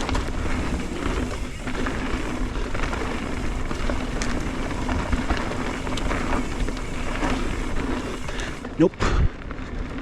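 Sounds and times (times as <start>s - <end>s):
bike clicking and rattling: 0.0s - 10.0s
tyre and wind rush: 0.0s - 10.0s.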